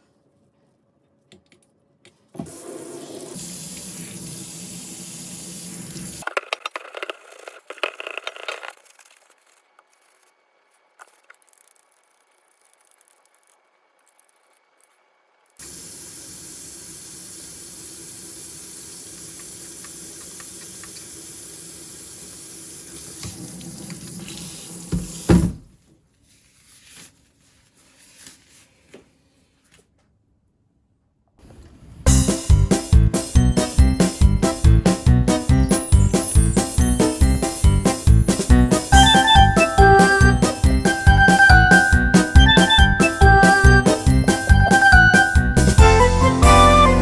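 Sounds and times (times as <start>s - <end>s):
tap water running into sink: 15.6s - 25.6s.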